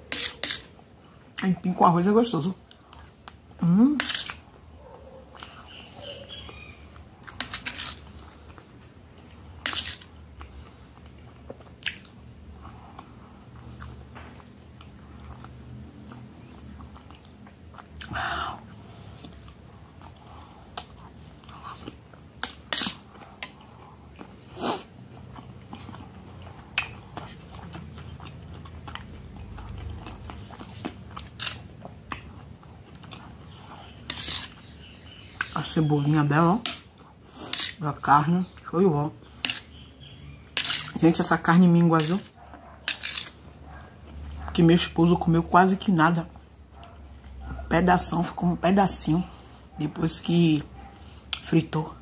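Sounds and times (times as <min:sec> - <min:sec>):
metal spoon scraping a plate: 0:00.1 - 0:00.7, 0:34.0 - 0:34.6, 0:40.5 - 0:41.0, 0:42.9 - 0:43.4
person chewing food: 0:02.6 - 0:35.6.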